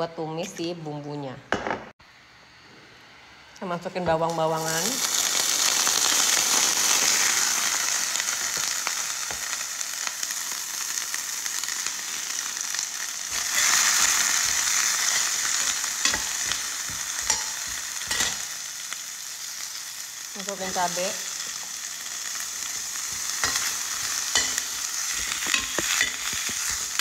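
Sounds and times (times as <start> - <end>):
food sizzling in hot oil: 4.2 - 27.0
metal spoon clicking on pan: 17.2 - 18.4, 24.3 - 26.8.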